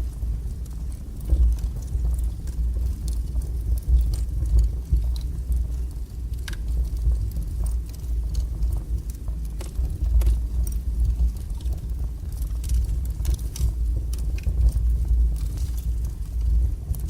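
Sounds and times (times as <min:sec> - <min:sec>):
fire burning with crackles: 0:00.0 - 0:17.0.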